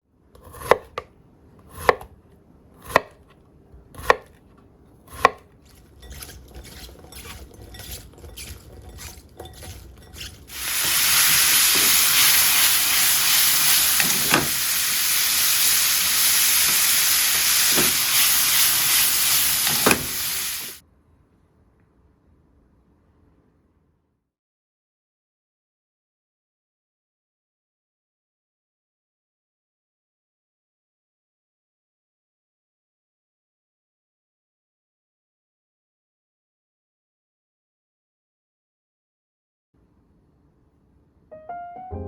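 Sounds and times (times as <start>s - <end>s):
knife chopping on cutting board: 0.4s - 2.2s, 2.8s - 4.4s, 5.1s - 12.0s, 13.9s - 14.6s, 16.7s - 19.0s
food sizzling in oil: 6.0s - 20.8s
utensil knocking against pan: 14.0s - 14.6s.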